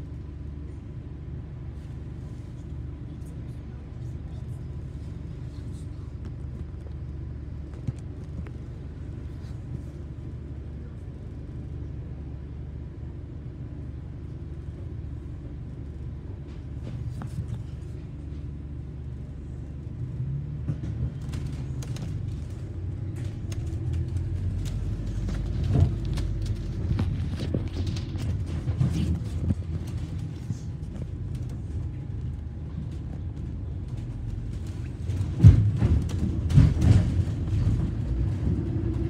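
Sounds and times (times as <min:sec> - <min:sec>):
bus engine and road rumble: 0:00.0 - 0:39.0
rattles and clicks: 0:20.6 - 0:39.0.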